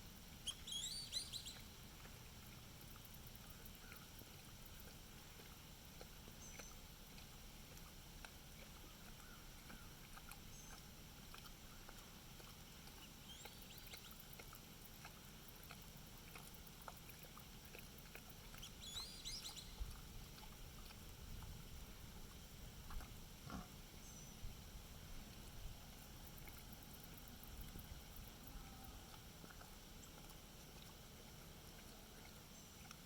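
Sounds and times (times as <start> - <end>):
rain dripping: 17.9 - 23.0.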